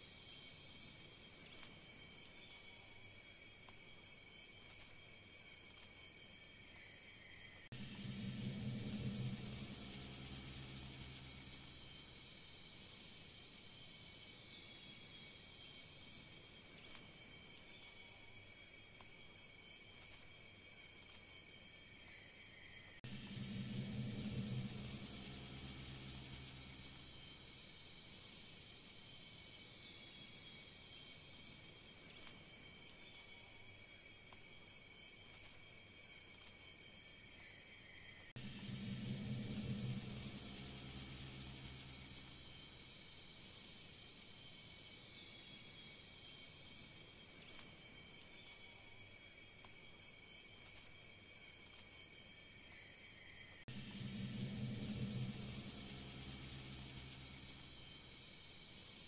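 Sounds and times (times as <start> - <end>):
crickets and insects chirring: 0.0 - 59.0
low humming tone: 7.7 - 13.1, 23.0 - 27.9, 38.4 - 43.1, 53.7 - 58.5.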